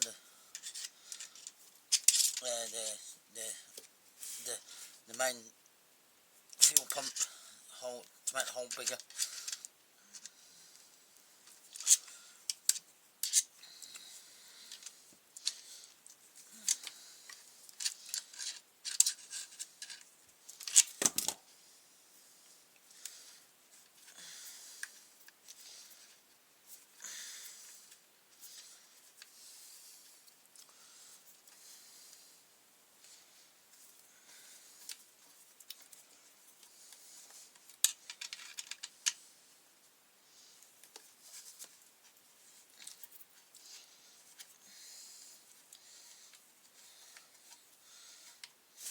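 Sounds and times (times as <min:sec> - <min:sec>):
hand tools clicking and scraping: 0:00.6 - 0:02.5, 0:06.6 - 0:07.4, 0:11.7 - 0:14.1
sharp clicks of plastic parts: 0:37.6 - 0:39.2.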